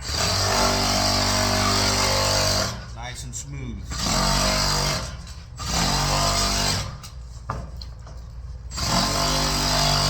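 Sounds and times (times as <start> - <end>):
power shears cutting sheet metal: 0.0 - 3.0, 3.9 - 7.2, 8.7 - 10.0.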